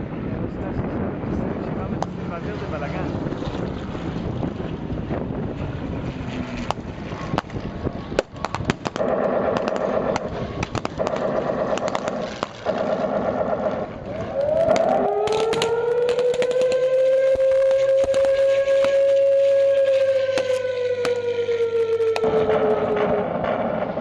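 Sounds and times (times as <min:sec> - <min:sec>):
wind noise: 0:00.0 - 0:24.0
air-raid siren wailing: 0:04.7 - 0:24.0
sharp bangs: 0:06.6 - 0:24.0
simulated gunfire bursts: 0:08.6 - 0:14.0.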